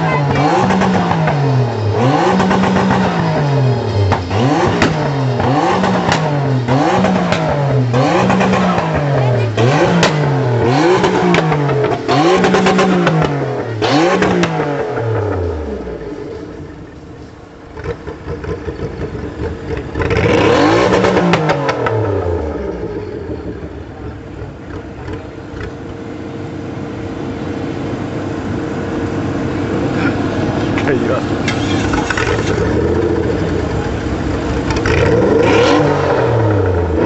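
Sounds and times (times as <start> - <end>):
engine idling: 0.0 - 37.0
engine revving with pops: 0.3 - 16.1, 17.8 - 23.6, 24.4 - 25.8, 30.8 - 37.0.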